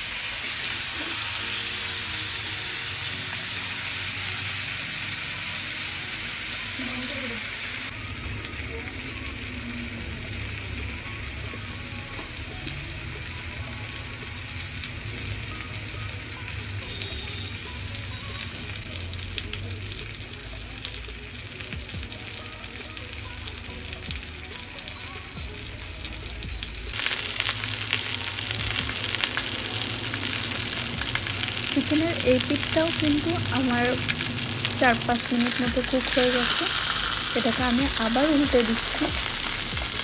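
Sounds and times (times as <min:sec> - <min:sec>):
chicken sizzling in a frying pan: 0:00.0 - 0:40.0.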